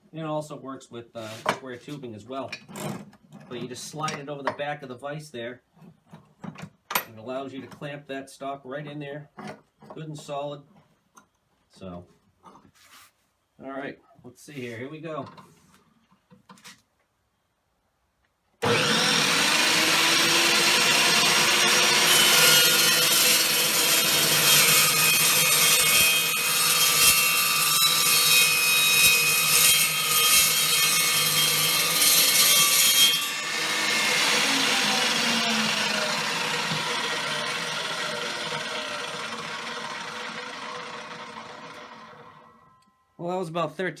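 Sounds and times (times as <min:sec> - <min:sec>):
saw motor winding down: 0:18.6 - 0:42.7
chop saw cutting steel: 0:18.6 - 0:42.8.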